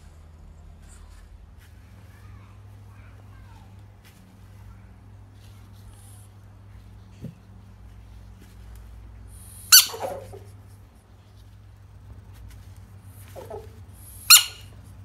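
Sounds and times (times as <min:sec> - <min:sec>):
steady low hum: 0:00.0 - 0:15.0
sharp high squeaks: 0:09.6 - 0:10.5, 0:13.4 - 0:14.8.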